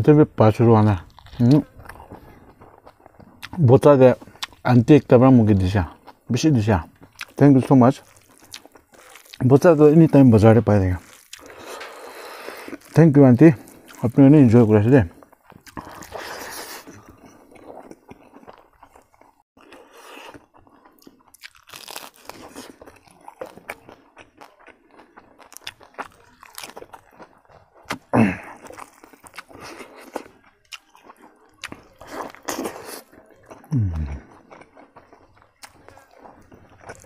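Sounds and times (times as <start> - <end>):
man chewing and crunching: 0.0 - 37.0.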